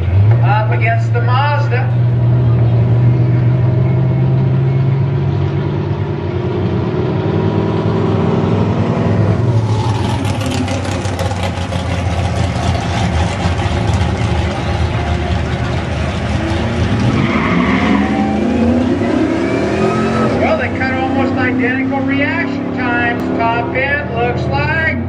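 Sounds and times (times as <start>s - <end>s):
engine idling with deep rumble: 0.0s - 6.1s, 9.2s - 19.1s.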